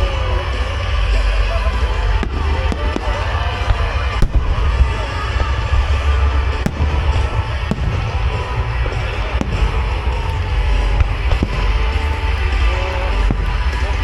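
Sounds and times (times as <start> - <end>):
fireworks booming: 0.0 - 14.0
fireworks sharp bangs: 0.0 - 14.0
music: 0.0 - 14.0.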